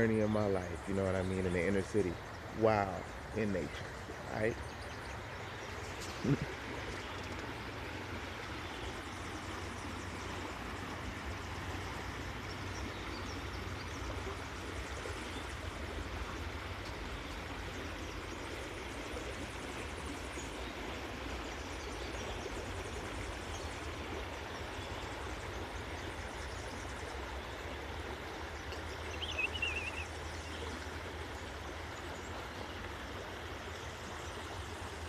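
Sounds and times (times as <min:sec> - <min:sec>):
creek water rushing: 0:00.0 - 0:35.0
bird warbling call: 0:29.1 - 0:30.5.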